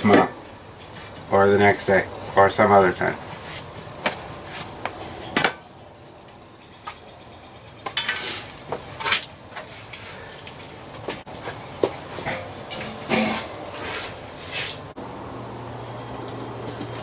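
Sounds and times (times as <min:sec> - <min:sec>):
scraping or rustling: 0:08.0 - 0:15.0.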